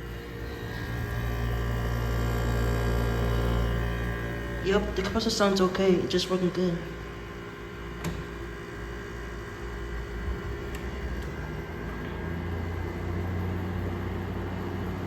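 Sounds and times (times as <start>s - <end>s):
air conditioner fan blowing: 0.0s - 15.0s
compressor low hum: 0.0s - 15.0s
air conditioner click: 7.9s - 8.5s, 10.6s - 12.2s.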